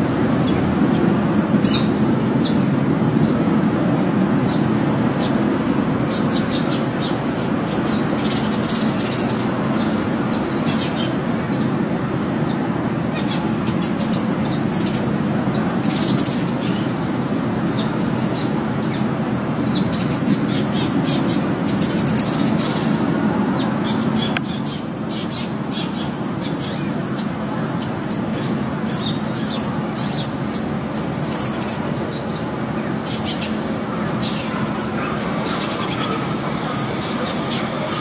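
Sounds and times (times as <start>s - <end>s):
birds chirping: 17.7s - 38.0s.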